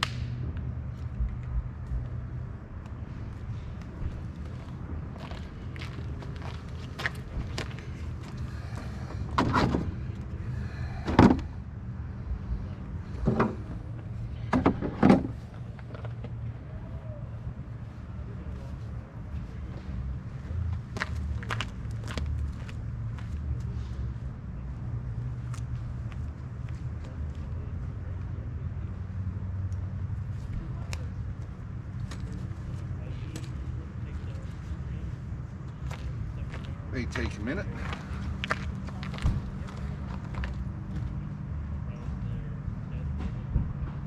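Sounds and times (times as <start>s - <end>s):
steady low hum: 0.0s - 44.0s
vehicle driving rumble: 0.0s - 44.0s
sharp clunks and knocks: 9.3s - 10.0s, 11.0s - 11.5s, 13.2s - 13.7s, 14.4s - 15.4s.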